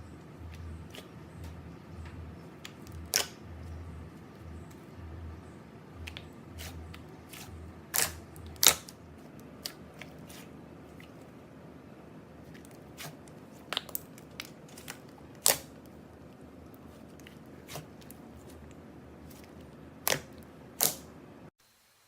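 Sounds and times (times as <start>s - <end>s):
low steady hiss: 18.0s - 22.0s.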